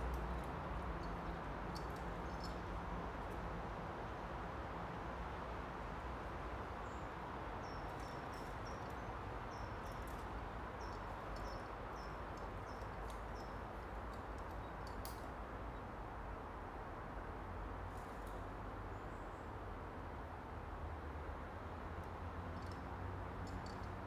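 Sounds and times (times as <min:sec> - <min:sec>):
small bird chirping: 0:10.8 - 0:13.6.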